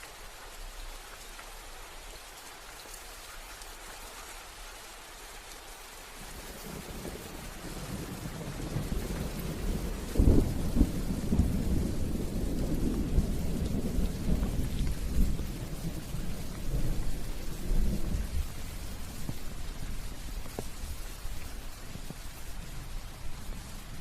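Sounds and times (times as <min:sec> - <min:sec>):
steady rain: 0:00.0 - 0:24.0
rumbling thunder: 0:06.2 - 0:21.0.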